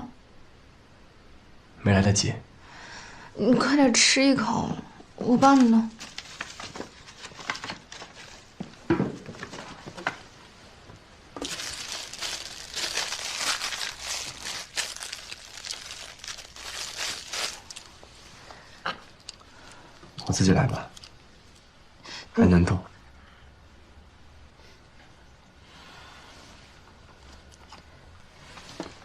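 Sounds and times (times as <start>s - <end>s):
packaging crinkling: 5.6s - 8.5s, 11.4s - 18.0s.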